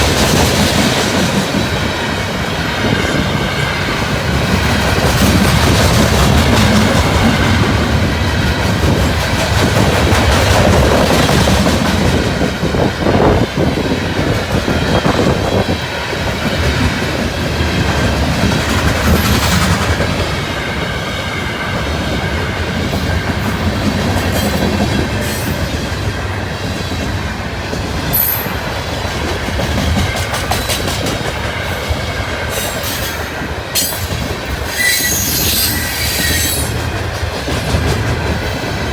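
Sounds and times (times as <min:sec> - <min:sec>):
wind buffeting microphone: 0:00.0 - 0:34.8
train wheels clattering on rails: 0:00.0 - 0:38.9
high wheel squeal: 0:34.7 - 0:36.8.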